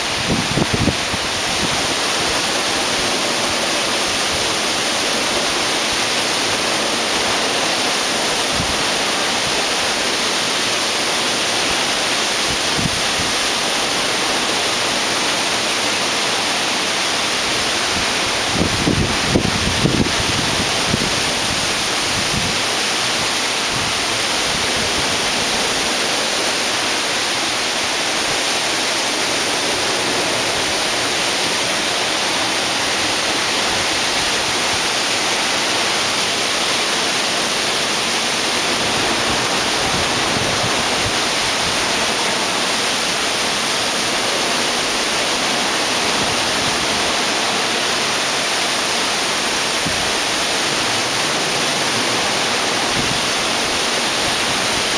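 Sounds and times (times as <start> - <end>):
wind gusts buffeting microphone: 0.0 - 7.6, 17.5 - 27.0, 38.6 - 44.1, 49.6 - 54.9
storm wind and rain rushing: 0.0 - 54.9.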